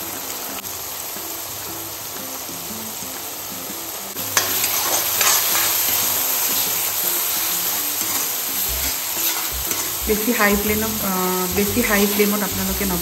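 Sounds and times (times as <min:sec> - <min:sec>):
paste sizzling in a pan: 0:00.0 - 0:13.0
spoon tapping a pan: 0:08.0 - 0:10.1.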